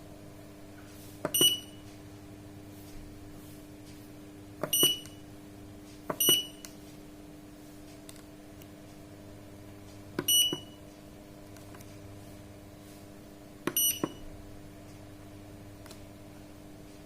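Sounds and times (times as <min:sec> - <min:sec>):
steady low hum: 0:00.0 - 0:17.0
short high beeps: 0:01.4 - 0:01.8, 0:04.7 - 0:05.2, 0:06.2 - 0:06.6, 0:13.8 - 0:14.2
keypad button clicks: 0:06.1 - 0:06.7.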